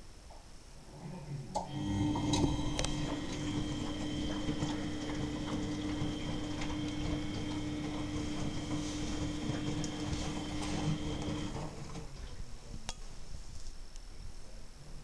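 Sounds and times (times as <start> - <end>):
washing machine motor hum: 1.6 - 12.8.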